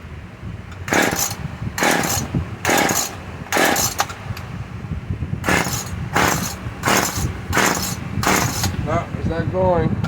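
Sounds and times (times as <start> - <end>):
chainsaw recoil starter rope whirring: 0.9 - 4.2, 5.4 - 8.8.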